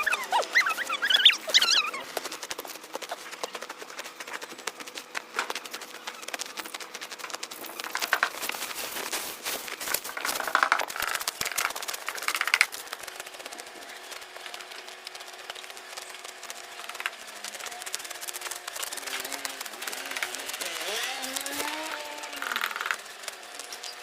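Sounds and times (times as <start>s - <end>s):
sickle cutting grass: 0.0s - 14.7s, 15.8s - 24.0s
rustling stalks: 0.0s - 24.0s.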